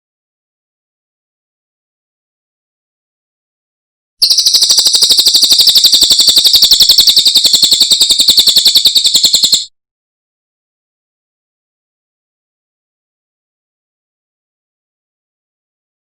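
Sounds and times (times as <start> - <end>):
bird high-pitched trill: 4.2 - 9.7.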